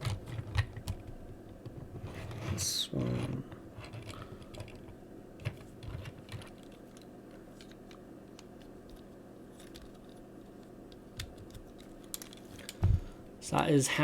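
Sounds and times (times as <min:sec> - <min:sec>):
plastic parts clicking: 0:00.0 - 0:01.2, 0:03.8 - 0:12.8
steady low hum: 0:00.0 - 0:14.0.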